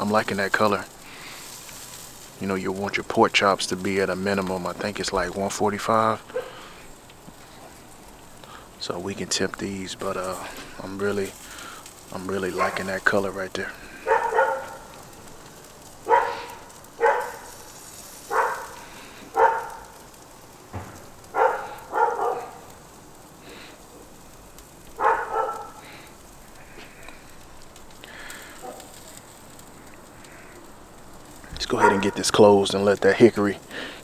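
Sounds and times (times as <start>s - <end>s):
meat sizzling over fire: 0.0s - 34.0s
dog barking: 6.2s - 6.7s, 12.4s - 13.0s, 14.0s - 15.2s, 16.0s - 20.1s, 21.0s - 22.8s, 24.9s - 25.9s, 28.6s - 29.1s, 31.8s - 32.3s.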